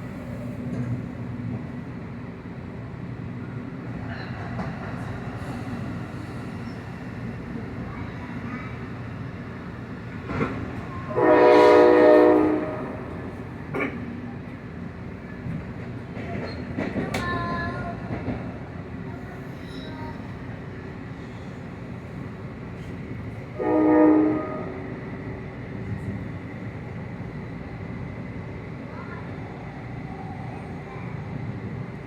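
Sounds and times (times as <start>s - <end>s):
passing train rumble: 0.0s - 32.0s
train horn blowing: 11.1s - 13.2s, 23.6s - 25.0s.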